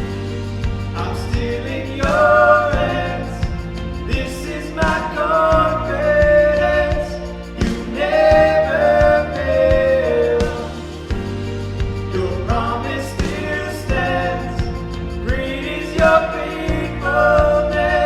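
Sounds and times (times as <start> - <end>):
light drum beat: 0.0 - 18.0
steady bass line: 0.0 - 18.0
worship song singing: 0.0 - 18.0.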